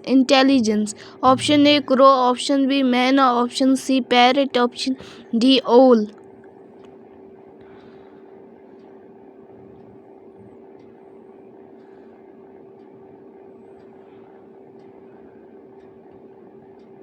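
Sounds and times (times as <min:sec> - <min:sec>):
faint timer ticks: 0:00.0 - 0:17.0
steady hum: 0:00.0 - 0:17.0.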